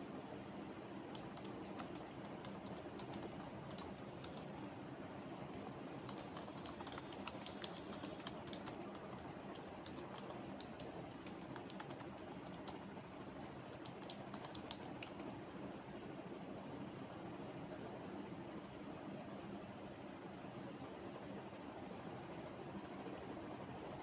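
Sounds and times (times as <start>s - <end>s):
faint background hiss: 0.0s - 24.0s
keyboard key clicks: 5.6s - 12.9s, 13.7s - 15.3s.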